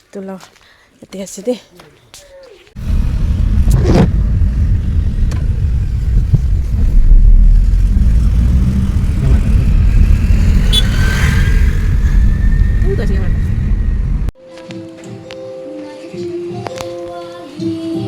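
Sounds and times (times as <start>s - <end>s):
car driving rumble: 2.8s - 14.4s.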